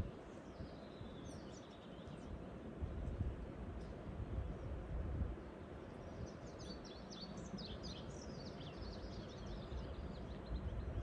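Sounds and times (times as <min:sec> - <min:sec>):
songbird twittering: 0:06.0 - 0:11.0.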